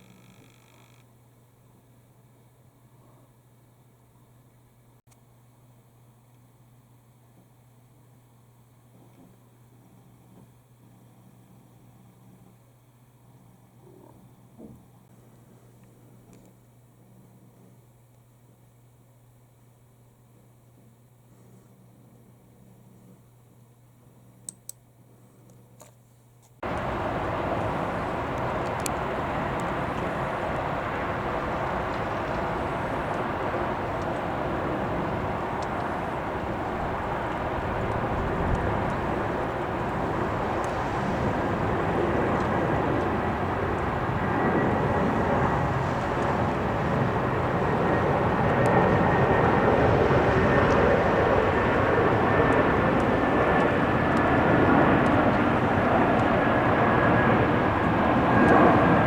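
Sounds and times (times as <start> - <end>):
faint high whine: 0.0 - 4.8, 26.6 - 59.0
jet engine drone: 26.6 - 59.0.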